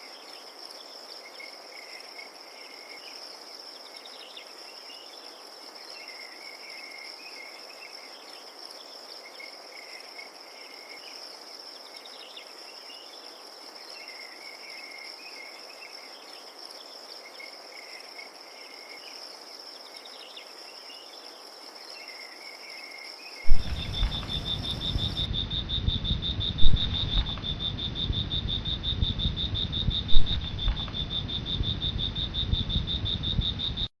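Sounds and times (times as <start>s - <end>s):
crickets trilling: 0.0s - 33.9s
rapidly pulsing cricket: 0.0s - 33.9s
sharp knocks: 23.5s - 25.3s
low rumbling noise: 23.5s - 33.9s.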